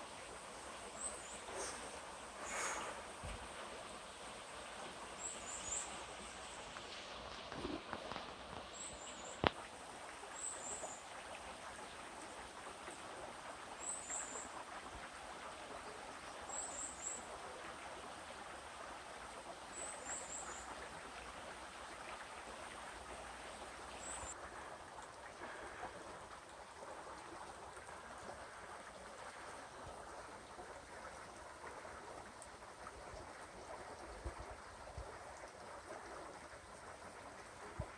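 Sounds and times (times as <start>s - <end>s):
stream flowing over rocks: 0.0s - 37.9s.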